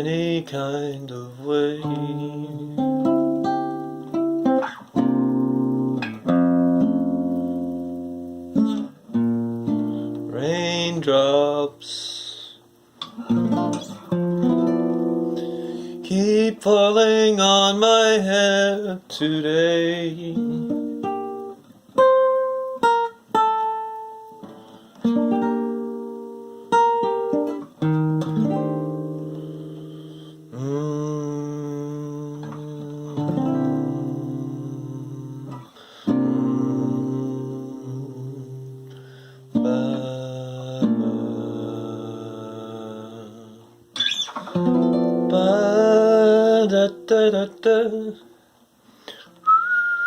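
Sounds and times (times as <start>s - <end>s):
person singing: 0.0s - 3.8s, 10.1s - 14.0s, 15.2s - 20.8s, 29.3s - 44.2s, 45.1s - 48.3s
guitar strumming chords: 0.0s - 48.4s.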